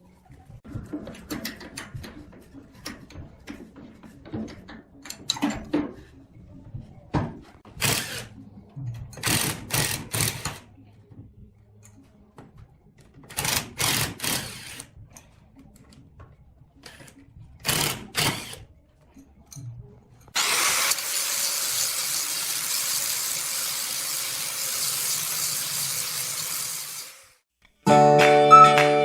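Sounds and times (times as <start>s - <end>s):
power tool running: 20.4s - 27.4s.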